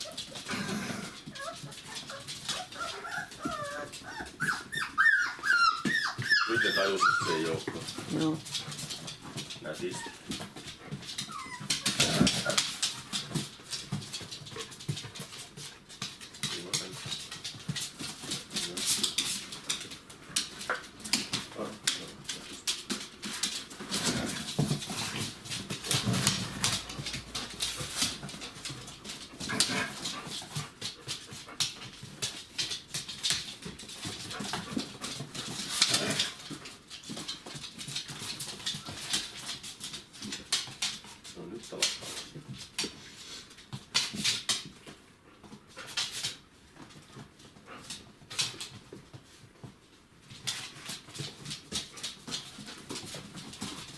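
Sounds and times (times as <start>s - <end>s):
paws clicking and scuffling: 0.0s - 53.9s
puppies whimpering and yipping: 1.1s - 7.7s, 9.7s - 10.4s, 11.0s - 12.7s.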